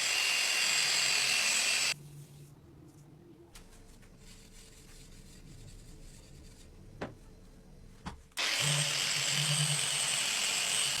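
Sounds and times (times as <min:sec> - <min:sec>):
power tool grinding steel: 0:00.0 - 0:02.0, 0:08.4 - 0:11.0.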